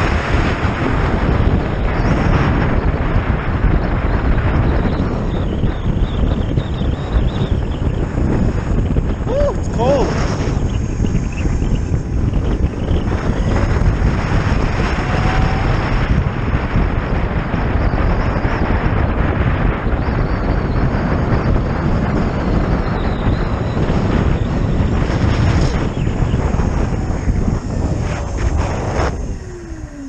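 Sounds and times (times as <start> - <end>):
wind buffeting microphone: 0.0 - 30.0
road noise: 24.0 - 30.0.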